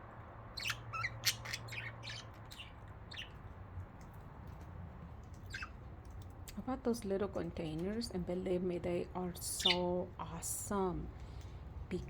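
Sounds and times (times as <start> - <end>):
budgerigars chirping: 0.6 - 3.4.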